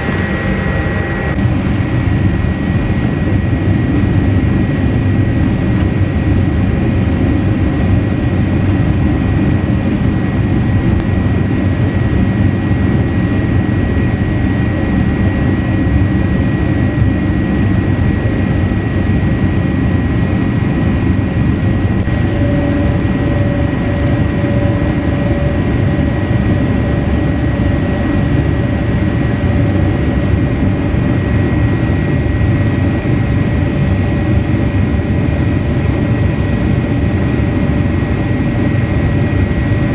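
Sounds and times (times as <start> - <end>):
faint steady whine: 0.0 - 39.9
jet engine cabin rumble: 0.0 - 39.9.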